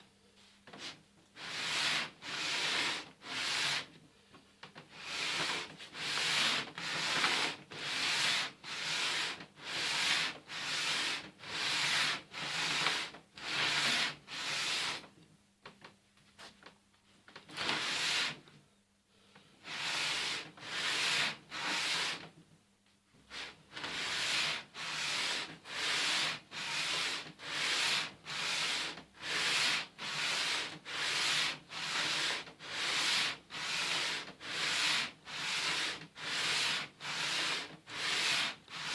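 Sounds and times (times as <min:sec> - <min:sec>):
metal rasping on sandpaper: 0:00.8 - 0:03.9, 0:04.9 - 0:15.0, 0:23.3 - 0:38.9.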